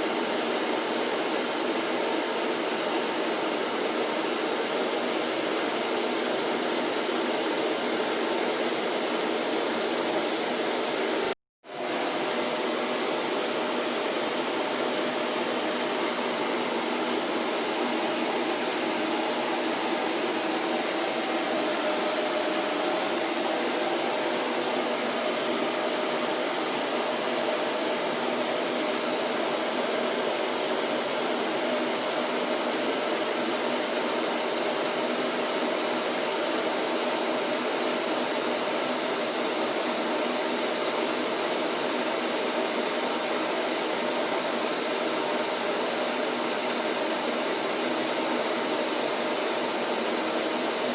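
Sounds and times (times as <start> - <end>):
vacuum cleaner running: 0.0 - 50.9.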